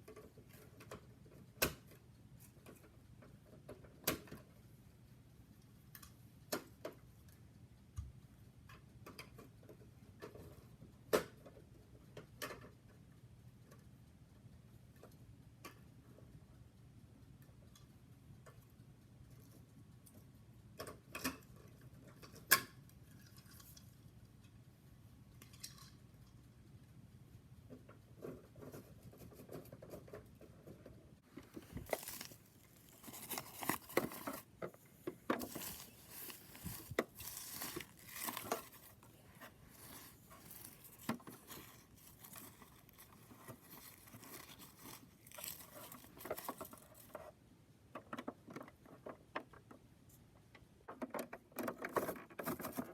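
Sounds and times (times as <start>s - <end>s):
crinkling: 28.2s - 47.3s, 51.7s - 52.9s
plastic toy clicking and rustling: 31.4s - 47.3s, 50.9s - 52.9s.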